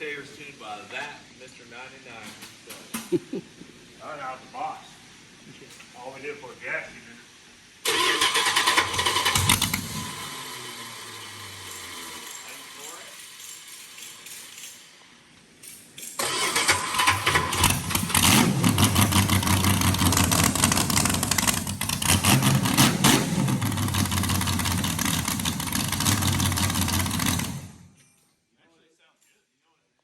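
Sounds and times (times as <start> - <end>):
race engine revving: 16.2 - 27.8.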